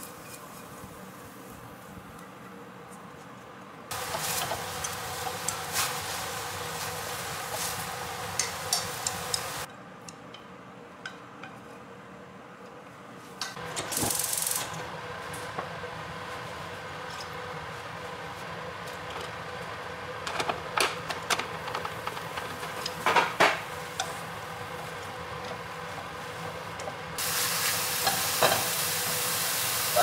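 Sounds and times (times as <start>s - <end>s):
meat sizzling in a wok: 3.9s - 9.7s, 27.2s - 30.0s
sauce hissing in a hot pan: 3.9s - 9.7s, 27.2s - 30.0s.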